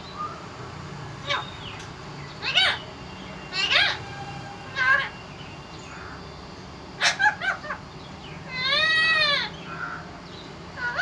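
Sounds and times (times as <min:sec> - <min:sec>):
parrot long call: 0:02.4 - 0:02.9, 0:03.5 - 0:05.3, 0:07.0 - 0:07.8, 0:08.5 - 0:10.0, 0:10.8 - 0:11.0.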